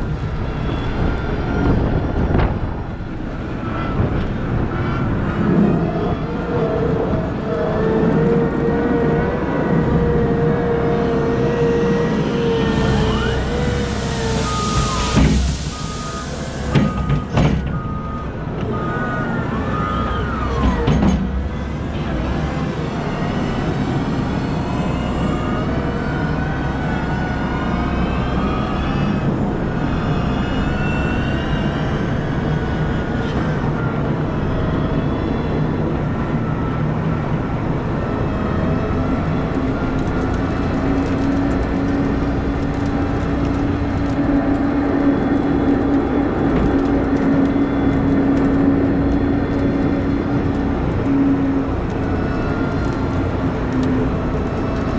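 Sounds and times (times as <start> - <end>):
heavy machinery engines revving: 0.0 - 54.9
reversing alarm beeping: 12.5 - 21.5.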